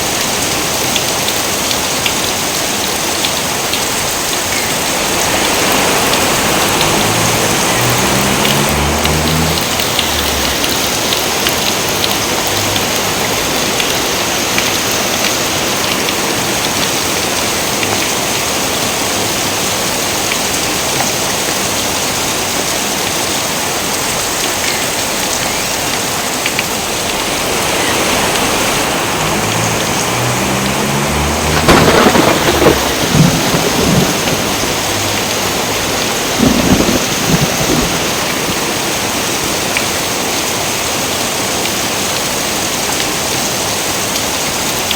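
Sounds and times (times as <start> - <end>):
heavy rainfall: 0.0 - 44.9
thunder rumble: 3.9 - 13.8, 26.8 - 39.4.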